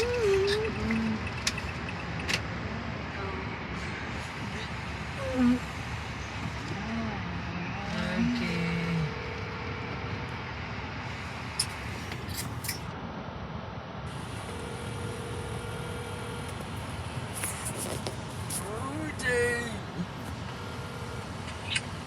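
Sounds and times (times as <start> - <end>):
vehicle running noise inside car: 0.0 - 13.0, 14.1 - 22.0
steady hum-like tone: 0.0 - 13.1, 13.8 - 22.0
person speaking: 6.6 - 10.1, 17.4 - 21.1.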